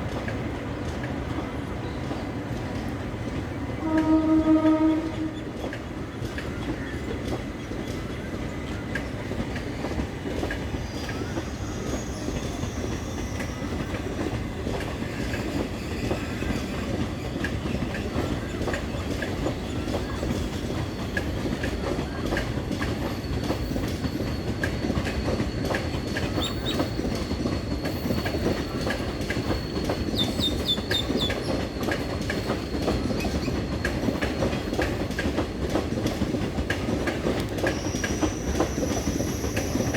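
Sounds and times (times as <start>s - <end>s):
train rumbling past: 0.0s - 39.9s
wheels clicking over rail joints: 5.5s - 39.9s
high wheel squeal: 10.8s - 14.1s, 23.0s - 34.8s, 37.6s - 39.9s.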